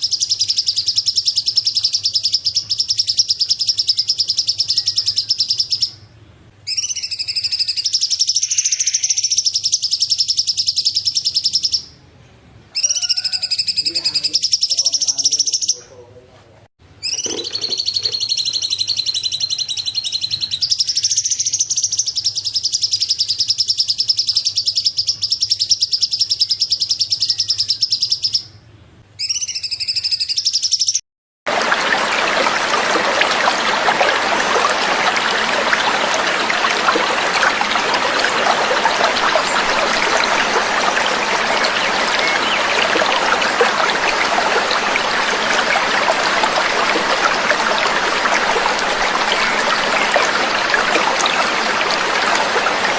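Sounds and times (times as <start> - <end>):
songbird trilling: 17.0 - 19.6, 34.8 - 45.6
running water trickling: 17.2 - 18.3, 31.5 - 52.9.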